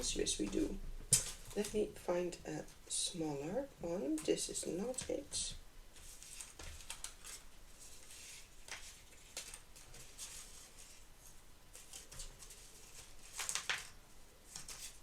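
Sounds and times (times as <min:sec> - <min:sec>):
paper rustling: 0:05.9 - 0:15.0.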